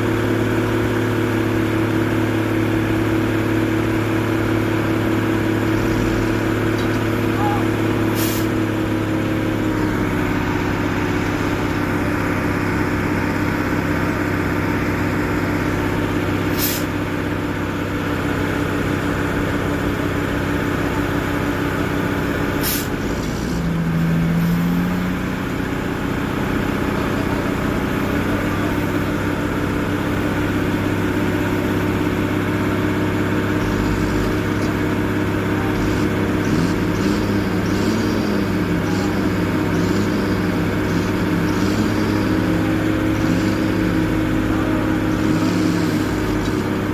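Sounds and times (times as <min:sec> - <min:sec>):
truck diesel engine running: 0:00.0 - 0:46.9
sharp air hisses: 0:08.1 - 0:08.6.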